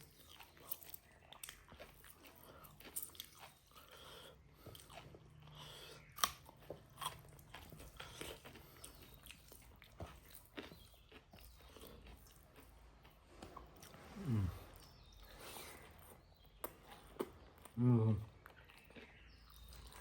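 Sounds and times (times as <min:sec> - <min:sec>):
person chewing food: 0:00.0 - 0:20.0.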